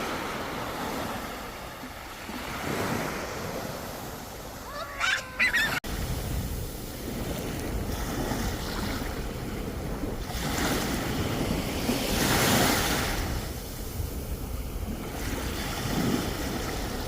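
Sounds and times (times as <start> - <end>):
waves breaking: 0.0 - 17.0
wind on microphone: 2.6 - 17.0
brief pitched cry: 4.6 - 5.8.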